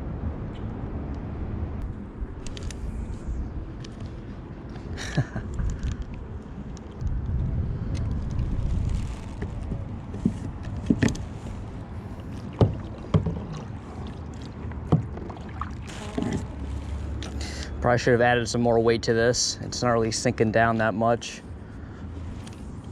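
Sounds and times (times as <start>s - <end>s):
knocks against kayak hull: 12.6s - 13.7s.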